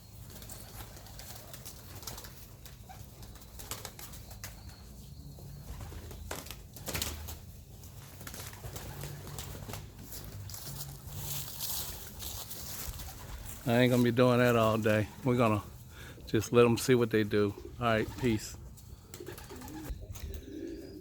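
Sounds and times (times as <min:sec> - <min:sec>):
wings flapping: 0:00.2 - 0:04.8, 0:05.6 - 0:11.1, 0:11.8 - 0:15.6, 0:17.9 - 0:20.4
pigeons cooing: 0:00.4 - 0:13.6, 0:14.2 - 0:21.0.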